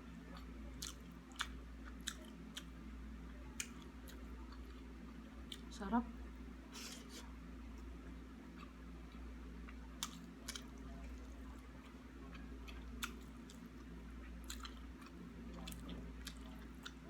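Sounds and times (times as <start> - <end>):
person chewing: 0.4 - 2.7, 8.5 - 17.0.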